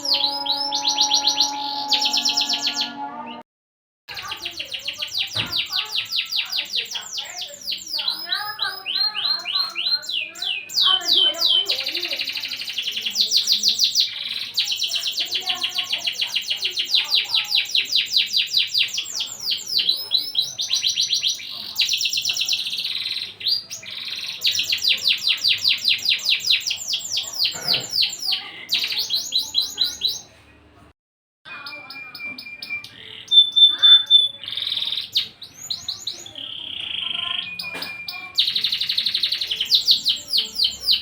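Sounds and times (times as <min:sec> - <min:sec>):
canary singing trills: 0:00.0 - 0:03.4, 0:04.1 - 0:30.4, 0:31.5 - 0:41.0.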